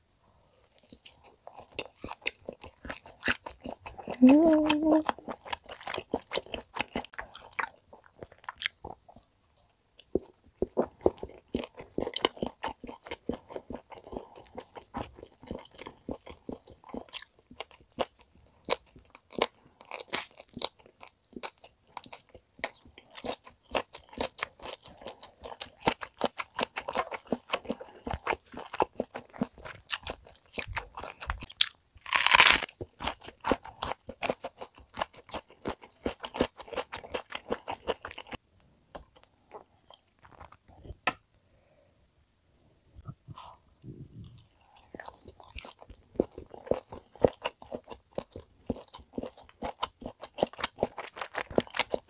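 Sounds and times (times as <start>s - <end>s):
chewing with wet mouth clicks: 5.0s - 9.3s.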